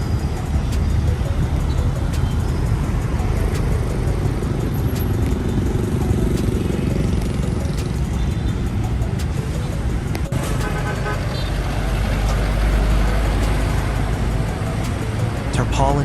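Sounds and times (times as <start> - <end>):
vehicle engine and traffic rumble: 0.0 - 16.0.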